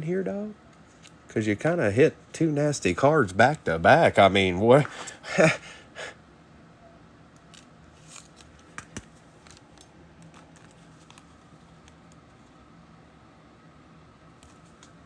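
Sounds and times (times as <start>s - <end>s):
trading cards being handled: 7.4s - 12.6s.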